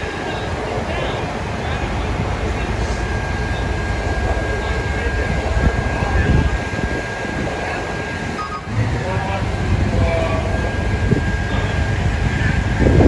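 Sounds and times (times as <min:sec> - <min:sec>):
engine idling: 0:00.0 - 0:13.0
faint high whine: 0:00.0 - 0:13.0
wind rumble: 0:00.0 - 0:13.0.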